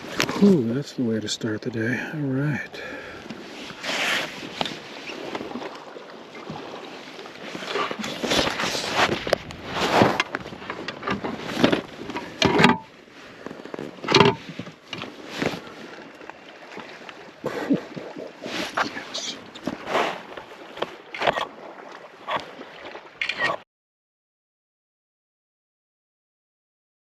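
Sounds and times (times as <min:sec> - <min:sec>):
water splashing: 0:02.5 - 0:23.6
knocks in a kayak: 0:14.0 - 0:15.6.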